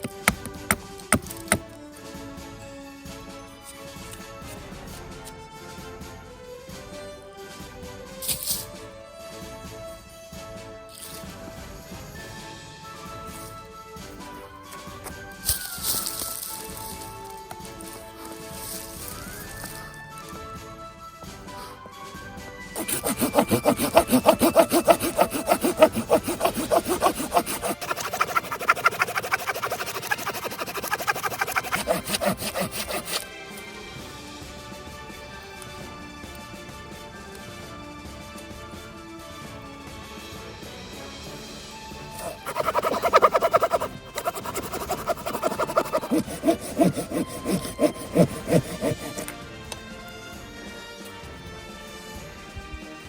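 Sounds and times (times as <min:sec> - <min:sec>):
hand saw cutting wood: 0:00.0 - 0:01.7, 0:22.8 - 0:33.3, 0:42.1 - 0:49.4.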